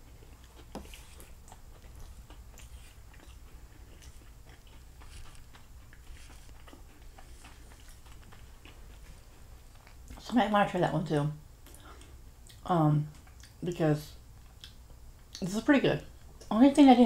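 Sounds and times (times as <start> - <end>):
person chewing: 0.0 - 10.2, 11.6 - 13.6, 14.3 - 15.4.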